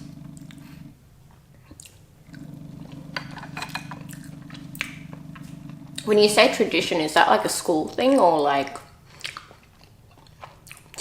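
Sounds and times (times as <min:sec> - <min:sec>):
steady low hum: 0:00.0 - 0:09.1
person chewing: 0:01.6 - 0:06.1, 0:09.0 - 0:11.0.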